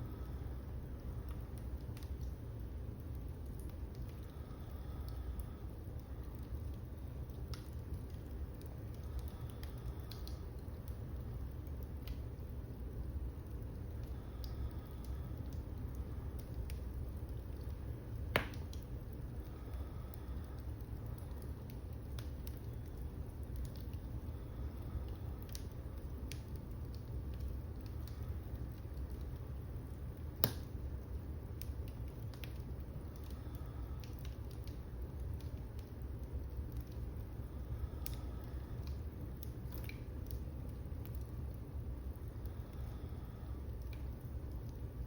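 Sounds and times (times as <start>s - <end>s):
wood fire crackling: 0.0s - 45.0s
fire pop: 18.2s - 18.9s, 30.2s - 30.8s.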